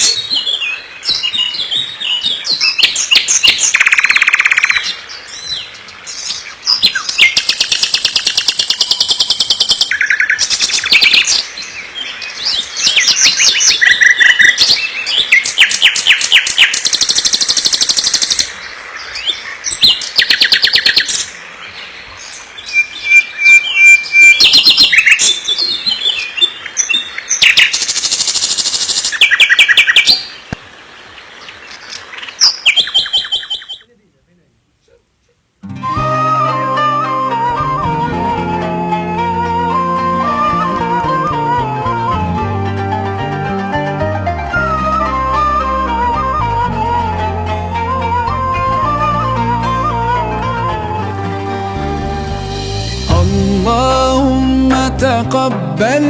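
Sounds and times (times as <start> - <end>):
songbirds chirping and trilling: 0.0 - 34.0.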